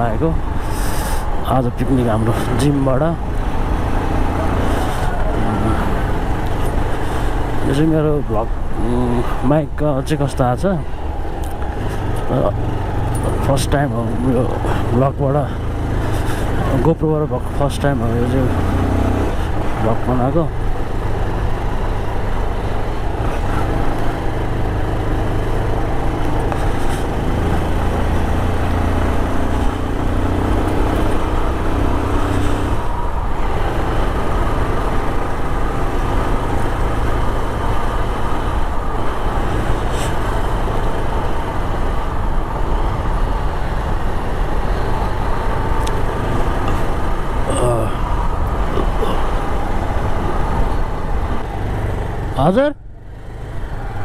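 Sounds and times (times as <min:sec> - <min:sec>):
road and wind noise: 0:00.0 - 0:54.0
surrounding traffic: 0:00.0 - 0:54.0.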